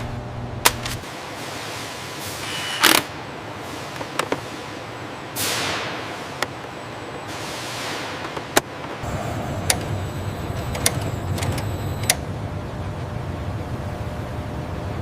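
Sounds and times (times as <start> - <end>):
machinery rumble: 8.1 - 15.0.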